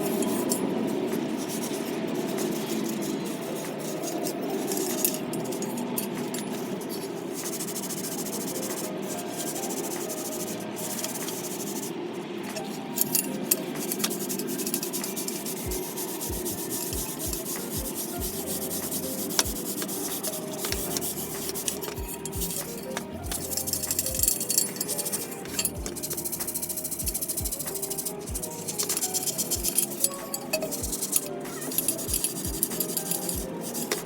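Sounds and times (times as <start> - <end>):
rubbing scrape on metal: 12.5 - 34.0.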